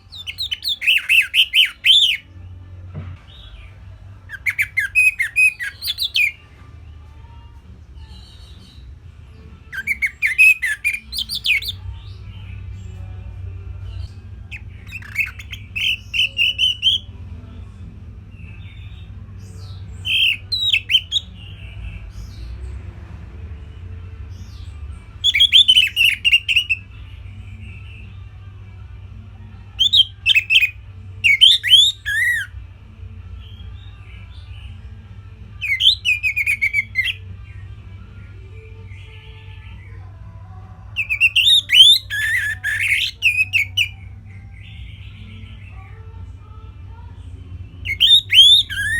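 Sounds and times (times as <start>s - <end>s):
thrush singing whistled notes: 0.1s - 2.3s, 4.3s - 6.4s, 9.6s - 11.9s, 14.5s - 17.1s, 19.7s - 22.4s, 24.5s - 27.0s, 29.8s - 32.6s, 35.6s - 37.3s, 41.0s - 45.4s, 47.8s - 48.9s.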